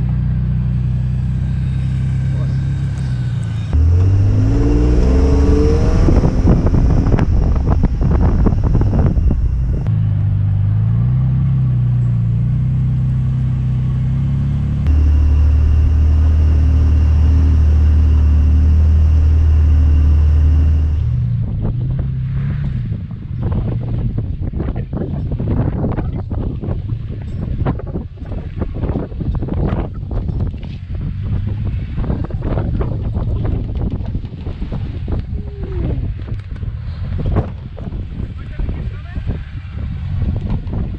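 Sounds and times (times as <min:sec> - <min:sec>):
truck engine revving: 0:00.7 - 0:22.9.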